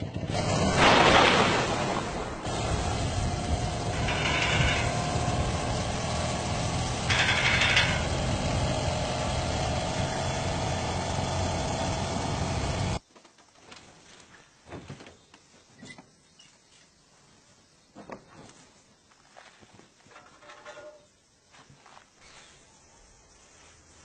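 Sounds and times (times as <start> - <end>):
small engine idling: 2.5 - 13.0.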